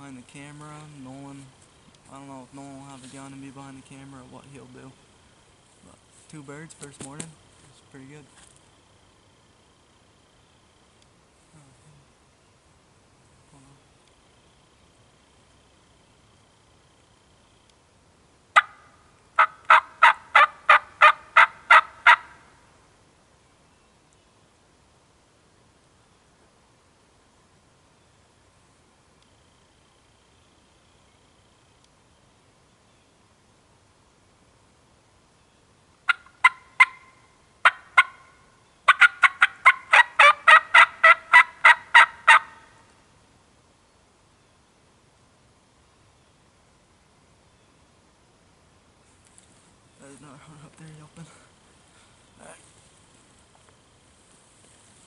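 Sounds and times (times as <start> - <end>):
turkey yelping: 18.6 - 22.4, 36.1 - 42.6.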